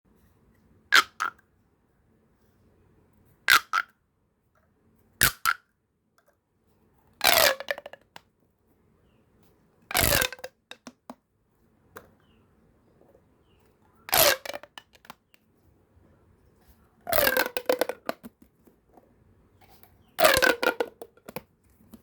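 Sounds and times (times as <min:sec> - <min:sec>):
pop tube toy popping: 0:01.0 - 0:01.4, 0:03.5 - 0:03.9, 0:05.2 - 0:05.6, 0:09.9 - 0:11.0, 0:17.1 - 0:18.3, 0:20.2 - 0:21.5.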